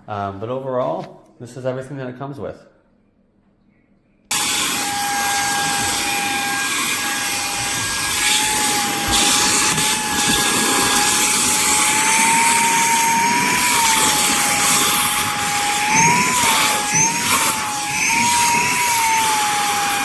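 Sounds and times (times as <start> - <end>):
handheld vacuum cleaner running: 4.3 - 20.0.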